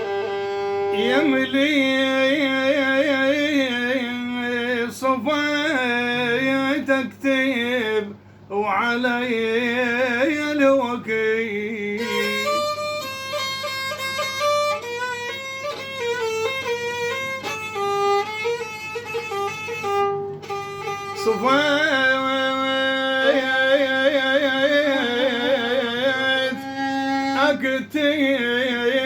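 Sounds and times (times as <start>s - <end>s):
violin melody: 0.0s - 4.0s, 12.0s - 29.0s
person singing: 0.0s - 13.1s, 20.4s - 29.0s.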